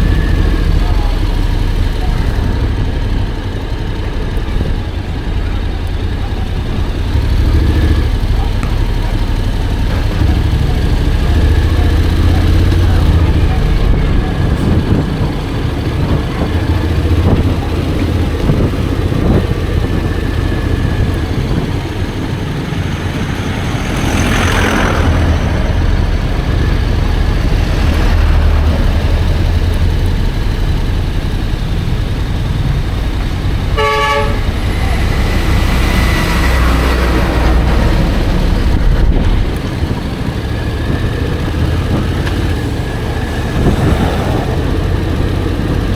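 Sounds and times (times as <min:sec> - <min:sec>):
scooter engine rumble: 0:00.0 - 0:45.9
wind: 0:00.0 - 0:45.9
vehicle horn toot: 0:33.8 - 0:34.7.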